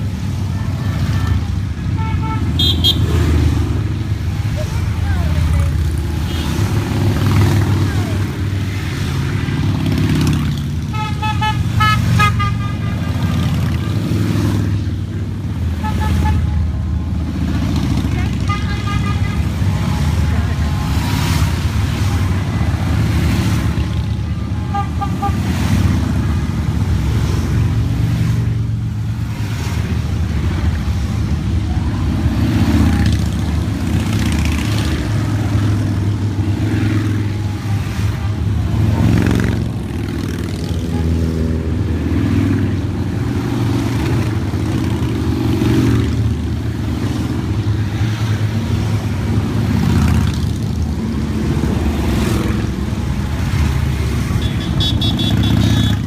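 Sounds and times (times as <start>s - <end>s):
motorcycles riding past: 0.0s - 56.0s
double horn toot: 2.0s - 3.3s, 54.3s - 56.0s.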